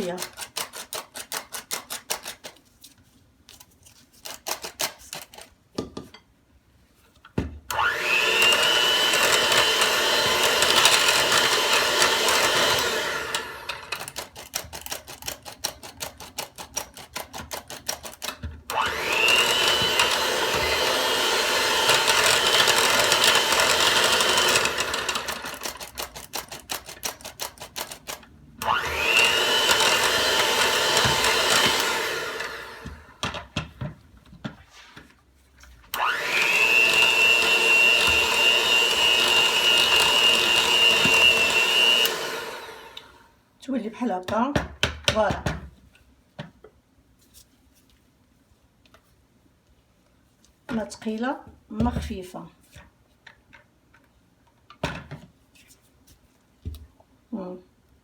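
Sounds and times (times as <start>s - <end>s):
electric mixer motor whining: 7.7s - 14.0s, 18.7s - 25.9s, 28.6s - 33.2s, 36.0s - 43.3s.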